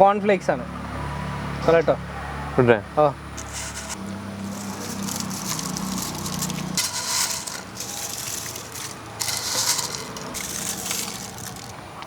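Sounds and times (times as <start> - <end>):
cornflakes crackling and crunching: 3.4 - 11.8.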